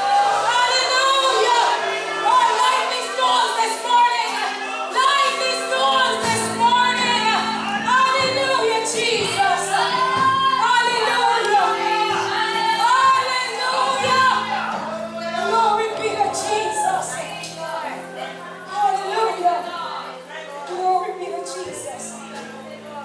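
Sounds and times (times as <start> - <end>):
woman singing gospel: 0.0 - 23.0.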